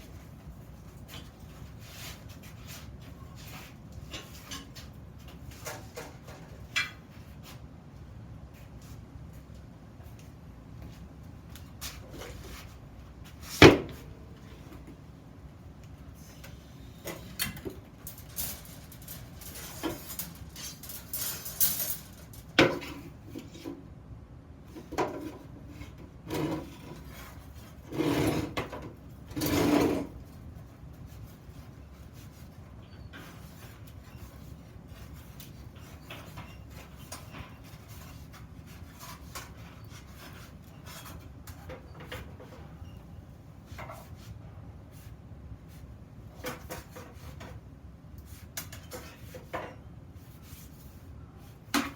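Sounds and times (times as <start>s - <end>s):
iron workpieces knocking and scraping: 16.4s - 23.8s, 24.7s - 30.2s, 32.3s - 43.0s, 48.6s - 49.9s.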